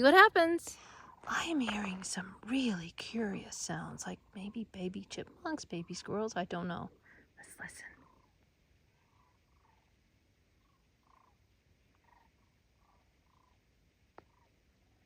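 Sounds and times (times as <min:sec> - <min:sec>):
faint squeaky animal calls: 0:07.9 - 0:13.6, 0:14.2 - 0:14.7.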